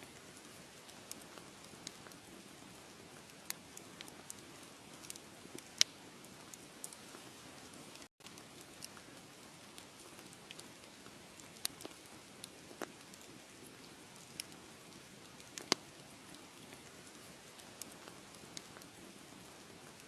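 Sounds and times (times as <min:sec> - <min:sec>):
wood fire crackling: 0:00.0 - 0:20.0
sharp pops of fire: 0:15.4 - 0:19.0.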